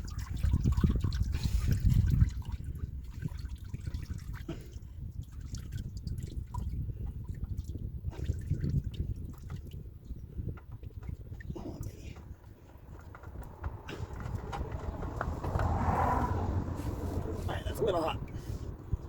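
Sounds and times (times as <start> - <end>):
oil dripping and trickling: 0.0 - 19.0
low rumble: 11.5 - 19.0.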